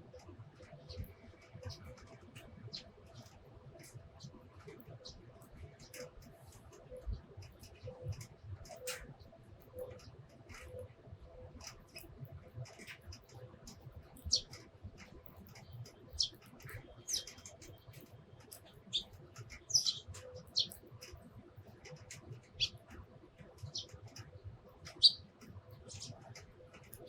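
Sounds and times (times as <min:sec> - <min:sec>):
sparrows chirping: 0:12.6 - 0:21.2, 0:21.8 - 0:27.0.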